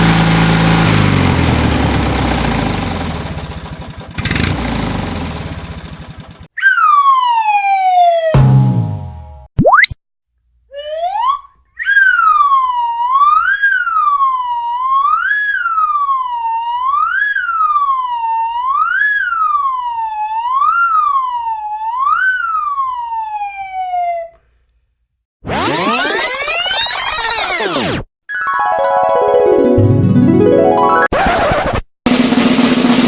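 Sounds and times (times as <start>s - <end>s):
siren wailing: 6.6s - 8.4s, 10.7s - 24.4s, 25.6s - 27.9s.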